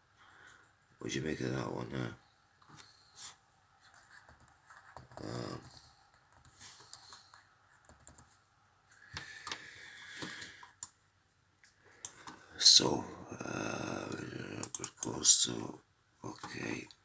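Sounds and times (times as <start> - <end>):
computer keyboard clicks: 7.8 - 8.3, 14.6 - 15.2.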